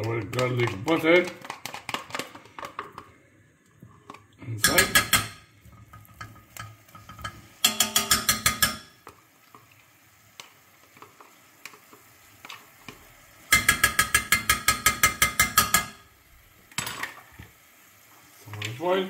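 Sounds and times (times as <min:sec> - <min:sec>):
utensil clinking in a pot: 0:04.6 - 0:09.2, 0:13.5 - 0:16.0.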